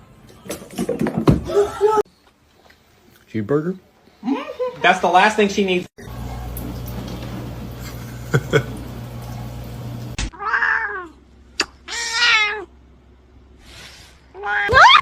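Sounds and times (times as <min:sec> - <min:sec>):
cat meowing: 0:10.3 - 0:11.2, 0:11.9 - 0:12.7.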